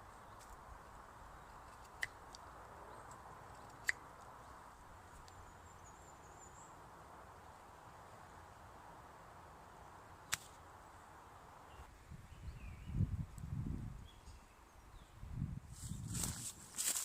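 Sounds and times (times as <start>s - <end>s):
faint breeze hiss: 0.0s - 17.0s
sharp clicks or snaps: 3.0s - 4.0s.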